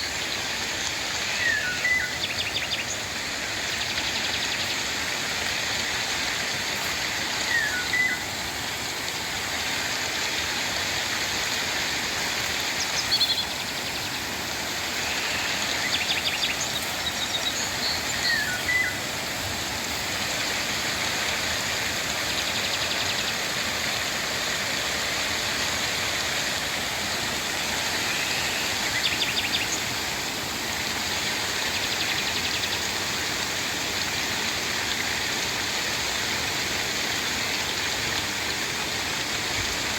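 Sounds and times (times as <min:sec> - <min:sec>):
steady rain: 0:00.0 - 0:39.9
birds chirping: 0:14.9 - 0:19.0, 0:27.6 - 0:30.0.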